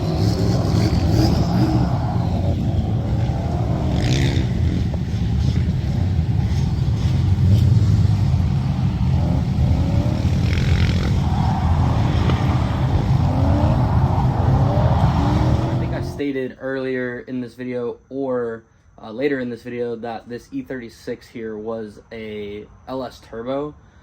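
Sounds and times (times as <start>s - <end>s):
car engine running hard: 0.0s - 16.2s.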